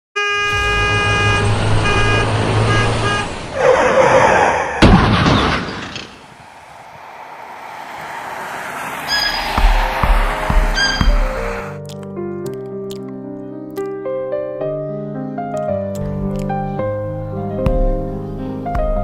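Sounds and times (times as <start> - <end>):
horn blasts: 0.2 - 3.7
loud rushing noise: 0.5 - 3.6, 6.0 - 11.8
low rumble: 6.3 - 11.7.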